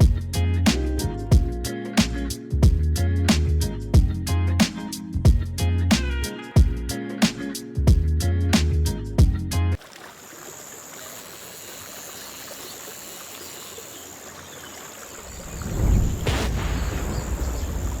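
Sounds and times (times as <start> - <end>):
guitar music: 0.0 - 9.8
thin high whine: 10.6 - 14.7.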